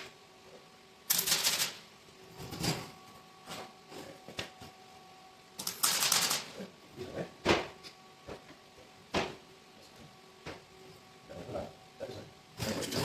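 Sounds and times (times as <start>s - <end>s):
welding arc crackling: 1.1s - 1.8s, 5.6s - 6.5s.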